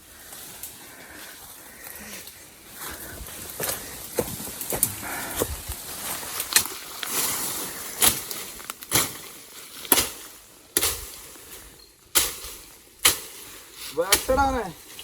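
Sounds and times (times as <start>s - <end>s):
blade chopping into wood: 9.9s - 11.2s, 12.2s - 13.5s.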